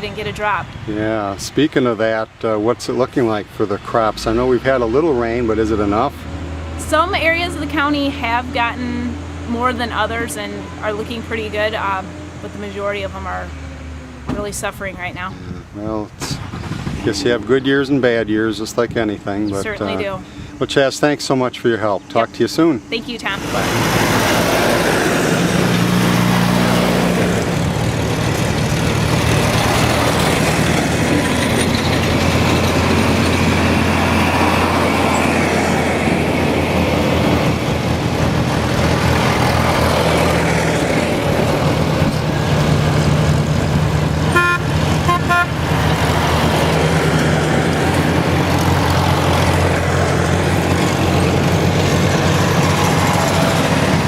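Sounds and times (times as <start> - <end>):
tractor engines running: 0.0 - 54.0
vehicle horn short toots: 44.3 - 45.6.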